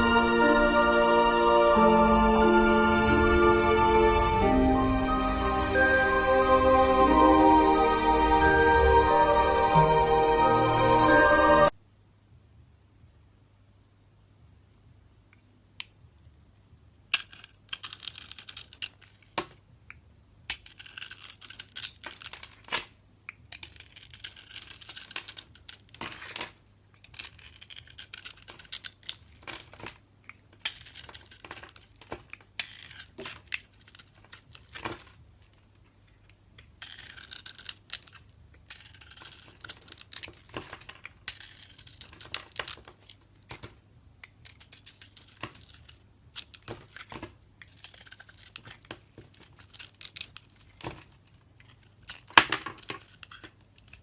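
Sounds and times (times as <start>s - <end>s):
brittle material crackling: 17.1s - 19.6s, 20.5s - 54.0s.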